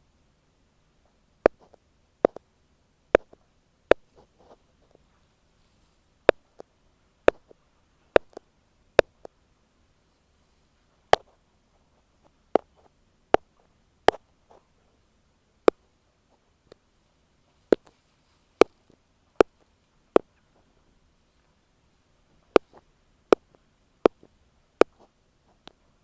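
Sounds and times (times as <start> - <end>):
ear pick tapping on microphone: 1.4 - 2.5, 3.1 - 4.6, 7.3 - 7.6, 8.2 - 9.3, 12.6 - 13.5, 22.4 - 25.8.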